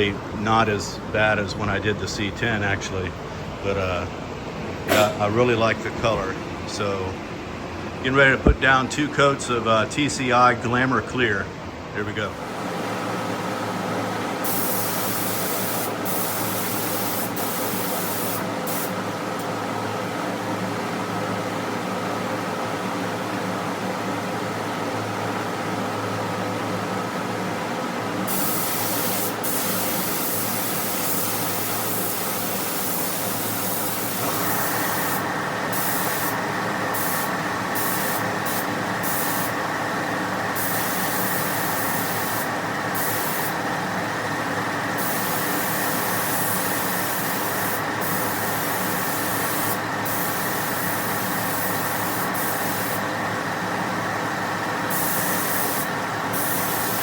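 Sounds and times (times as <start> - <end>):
steady hum: 0.0 - 20.6, 26.6 - 57.0
spray gun hissing: 14.4 - 19.0, 28.3 - 39.6, 40.6 - 43.6, 45.0 - 53.1, 54.9 - 57.0.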